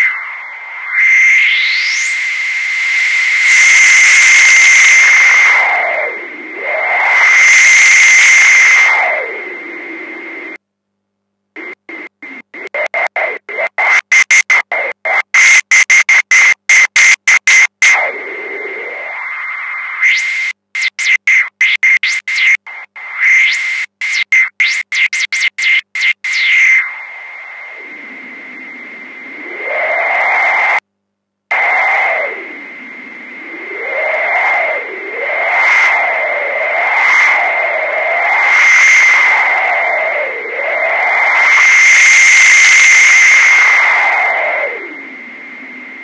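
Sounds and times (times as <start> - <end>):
steady high whistle tone: 0.0 - 10.5, 17.5 - 30.8, 31.5 - 46.0
filtered white noise hiss: 26.2 - 38.5.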